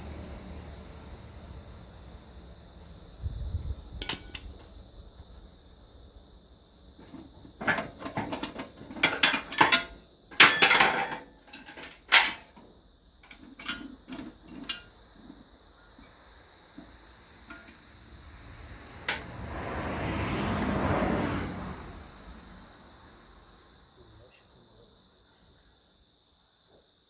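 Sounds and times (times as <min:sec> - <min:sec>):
metal clanks and rattles: 0:03.9 - 0:04.8, 0:07.0 - 0:15.4, 0:16.8 - 0:17.8.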